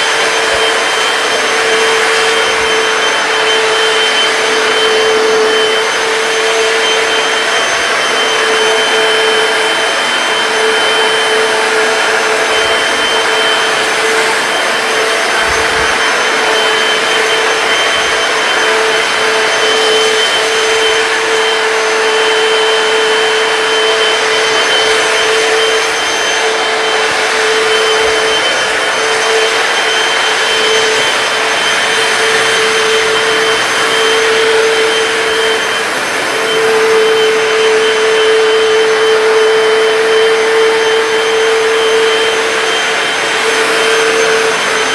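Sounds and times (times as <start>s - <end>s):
floor cleaner whine and hiss: 0.0s - 44.9s.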